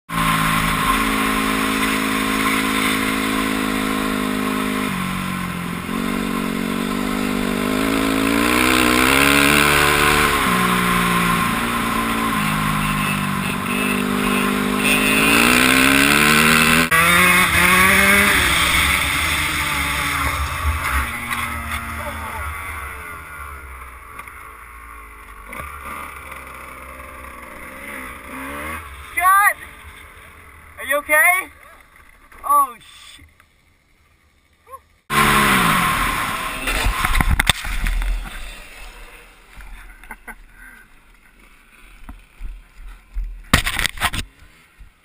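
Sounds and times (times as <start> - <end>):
dirt bike engine accelerating: 0.1 - 32.4, 33.9 - 41.4.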